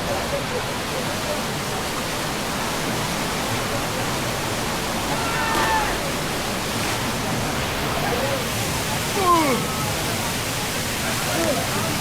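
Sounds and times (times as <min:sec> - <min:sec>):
waterfall rushing: 0:03.7 - 0:12.0.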